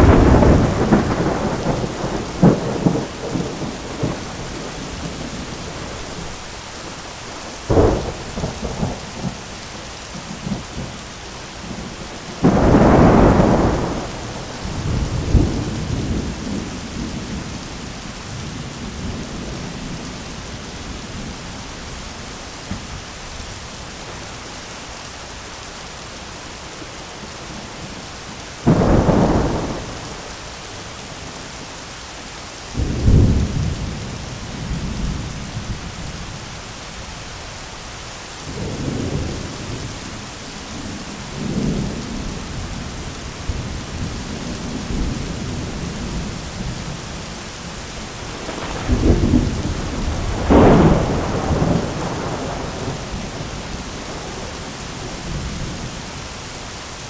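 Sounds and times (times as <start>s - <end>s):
thunderclaps and rumbles: 0.0s - 6.4s, 7.6s - 9.5s, 11.7s - 20.3s, 28.6s - 30.4s, 38.5s - 47.4s, 48.1s - 56.0s
steady rain hiss: 0.0s - 57.0s.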